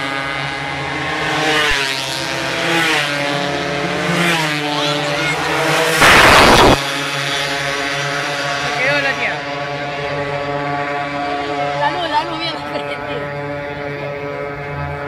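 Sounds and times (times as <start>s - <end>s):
motorcycle engines revving and passing: 0.0s - 15.0s
loud rush of noise: 5.1s - 7.2s.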